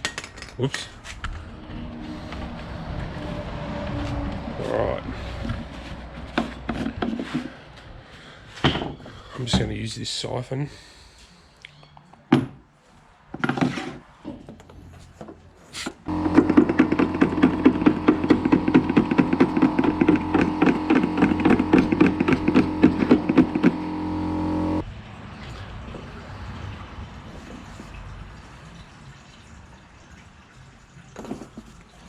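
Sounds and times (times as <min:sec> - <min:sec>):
small pump buzzing and rattling: 0:16.0 - 0:24.8.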